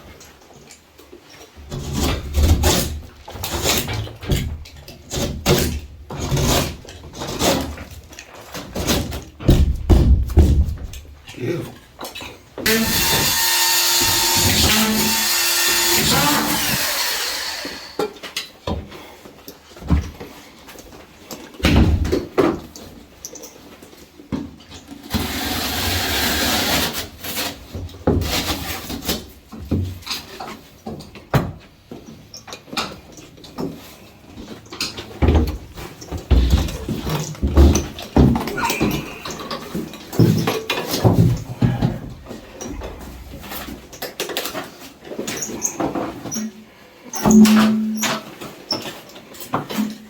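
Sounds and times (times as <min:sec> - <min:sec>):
knocks from handling drywall: 0:08.8 - 0:11.0
handheld power tool running: 0:12.7 - 0:18.1.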